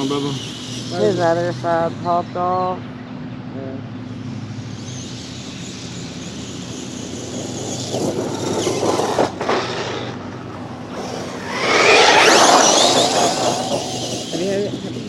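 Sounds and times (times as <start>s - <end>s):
tyres running over ground: 4.1s - 15.0s
electric motor whining: 4.8s - 15.0s.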